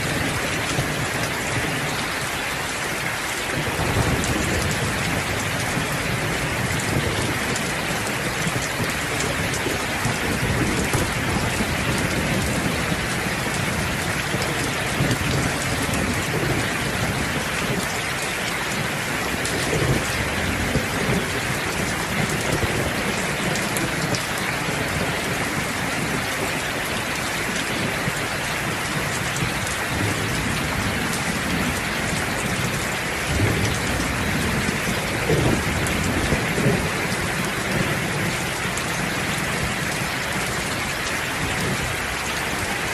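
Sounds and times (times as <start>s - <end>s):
heavy rain: 0.0s - 42.9s
thunder rumbling: 3.6s - 18.0s, 27.7s - 40.8s.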